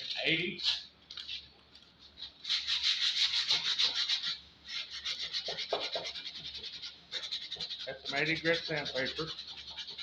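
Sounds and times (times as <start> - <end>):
sandpaper scraping wooden handle: 2.4 - 10.0.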